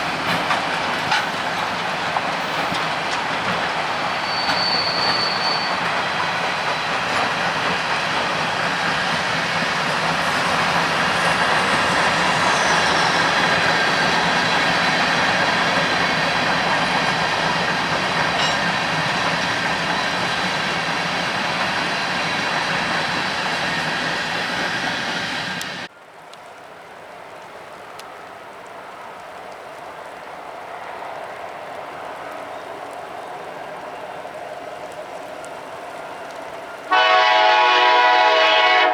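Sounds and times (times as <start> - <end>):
steel wheels rumbling on rail: 0.0 - 25.9, 30.6 - 38.9
faint wheel squeal: 4.1 - 6.0.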